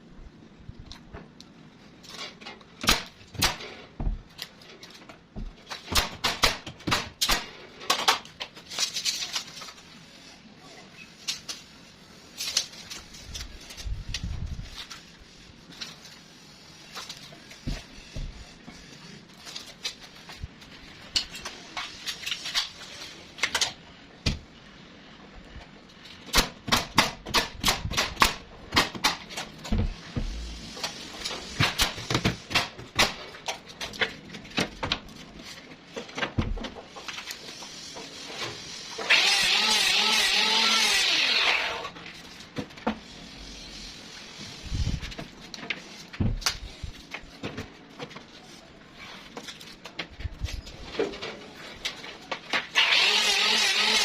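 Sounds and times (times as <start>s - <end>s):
small power tool running: 52.8s - 54.0s.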